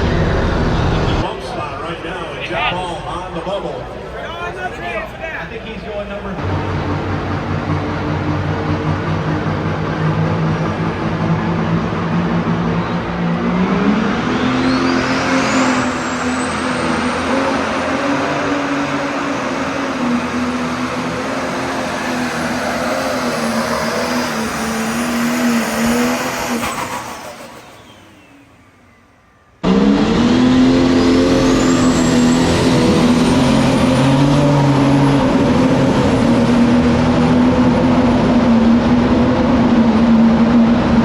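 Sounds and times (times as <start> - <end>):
diesel tractor engine revving: 0.0 - 4.3, 5.7 - 41.0
turbo whine: 21.1 - 34.2.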